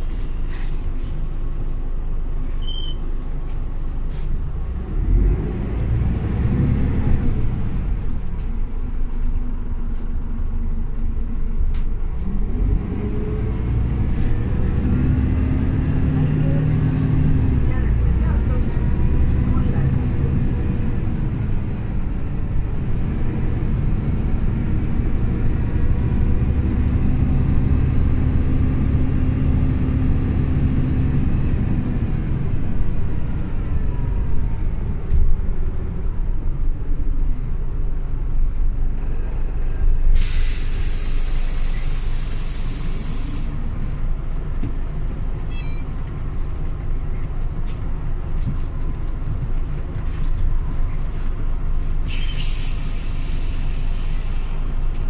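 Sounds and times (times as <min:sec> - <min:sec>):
bus diesel engine running: 0:00.0 - 0:55.0
compressed air hiss: 0:40.2 - 0:43.6, 0:52.1 - 0:54.6.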